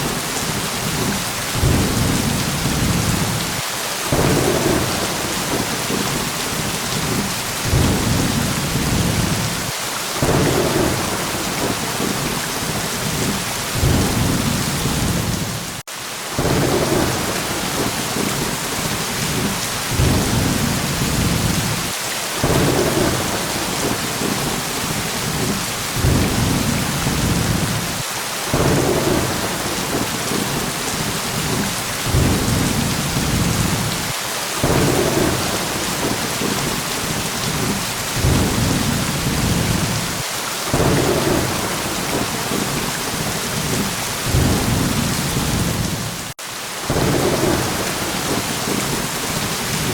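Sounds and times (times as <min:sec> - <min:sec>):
heavy rain hissing: 0:00.0 - 0:49.9
low rolls of thunder: 0:00.8 - 0:15.8, 0:16.4 - 0:34.0, 0:34.6 - 0:46.1.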